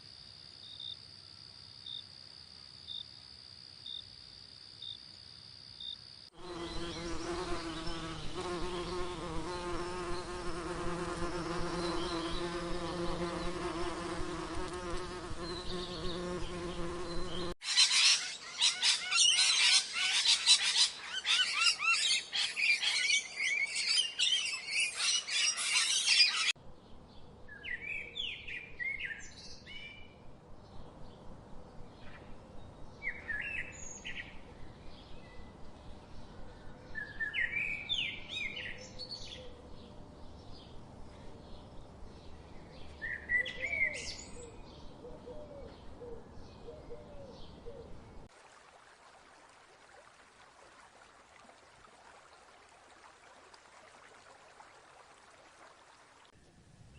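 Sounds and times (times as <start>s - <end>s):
insect buzzing: 5.8s - 19.2s.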